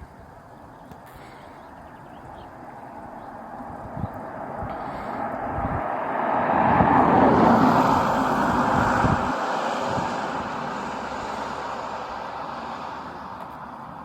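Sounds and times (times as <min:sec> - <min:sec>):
vehicle passing by: 0:02.5 - 0:14.0.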